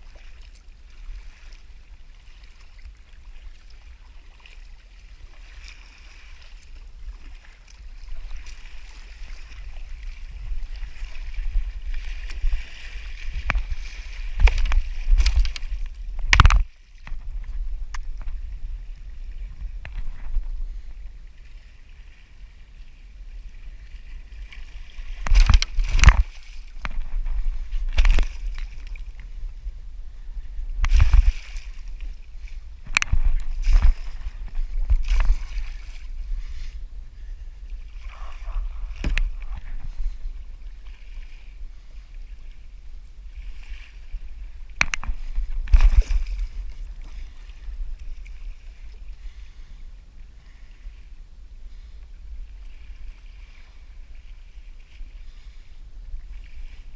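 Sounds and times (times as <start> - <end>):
water sloshing around a kayak: 0.0 - 56.9
low rumble: 24.7 - 41.8.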